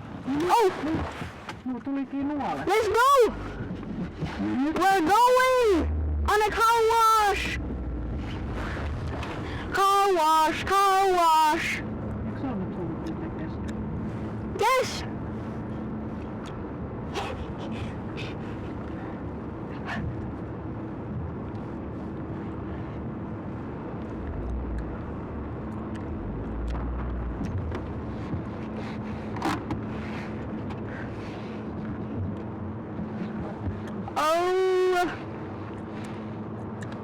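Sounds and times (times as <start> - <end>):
low rumble: 0.0 - 34.2
car engine humming: 2.4 - 12.6, 24.0 - 30.9.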